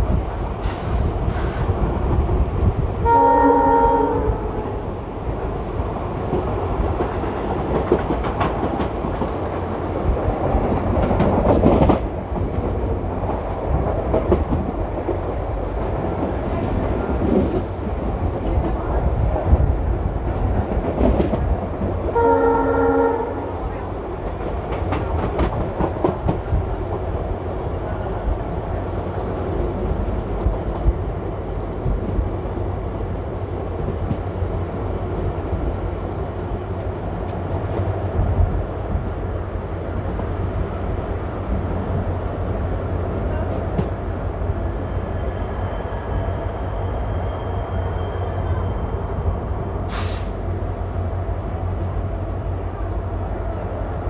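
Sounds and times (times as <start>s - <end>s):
wind noise: 0.0s - 22.2s, 23.3s - 54.0s
train wheel rumble: 0.0s - 54.0s
train horn: 3.0s - 4.8s, 22.1s - 23.8s.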